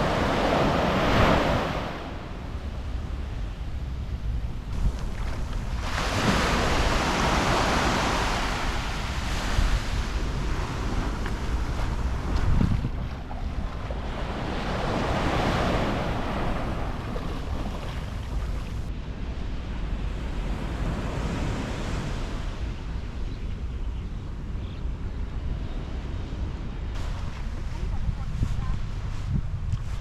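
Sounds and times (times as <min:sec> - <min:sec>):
sea waves washing onto beach: 0:00.0 - 0:03.2, 0:04.7 - 0:18.9
wind buffeting microphone: 0:00.0 - 0:30.0.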